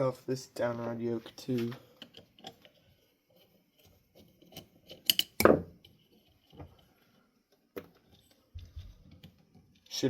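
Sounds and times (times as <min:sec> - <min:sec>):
metallic clicks of tools: 0:04.5 - 0:05.6.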